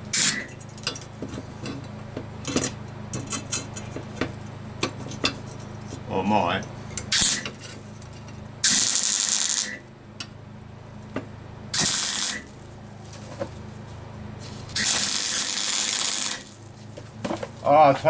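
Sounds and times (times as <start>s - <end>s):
welding arc crackling hiss: 0.1s - 0.5s, 7.1s - 7.6s, 8.6s - 9.9s, 11.8s - 12.7s, 14.6s - 16.9s.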